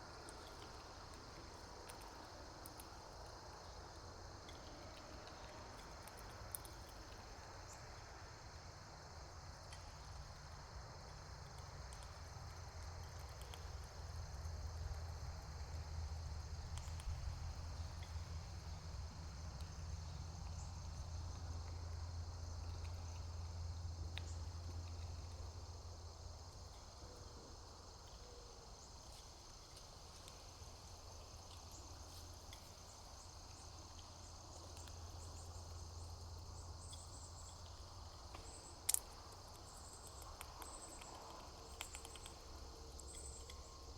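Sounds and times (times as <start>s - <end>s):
insects chorus: 0.0s - 43.9s
faint ticks: 11.0s - 15.9s, 28.9s - 43.9s.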